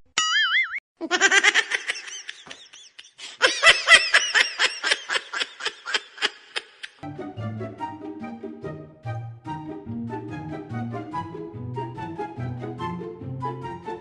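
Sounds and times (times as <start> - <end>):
high-pitched giggling: 1.0 - 7.0
background music: 7.0 - 14.0.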